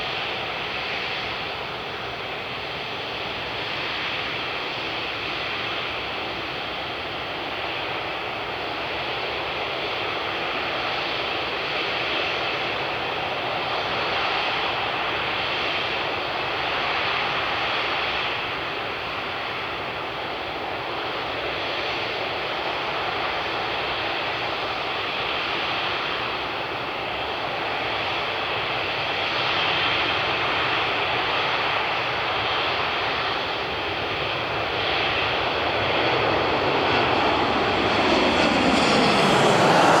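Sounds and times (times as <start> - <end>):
jet engines running: 32.0 - 40.0.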